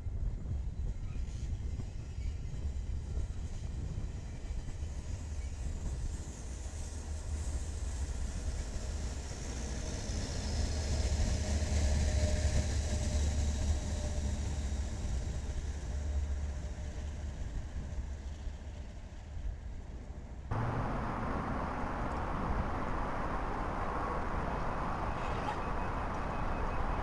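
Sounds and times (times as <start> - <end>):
passing train rumble: 0.2 - 27.0
steady wide noise: 20.5 - 27.0.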